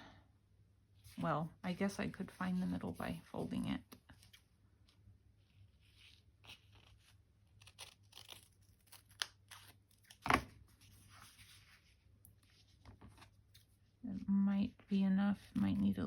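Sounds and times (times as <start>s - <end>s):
craft material rustling and crinkling: 2.2s - 14.0s.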